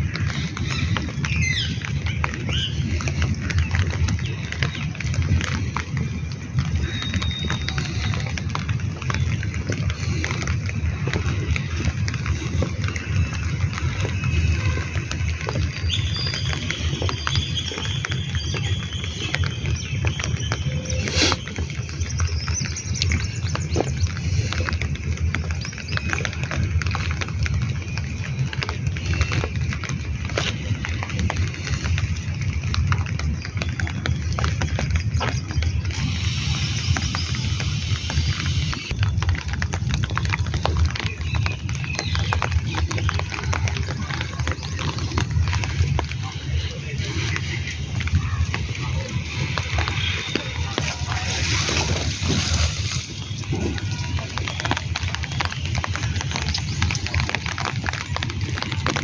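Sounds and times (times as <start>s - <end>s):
rain pattering: 0.0s - 59.0s
steady low rumble: 21.6s - 41.8s.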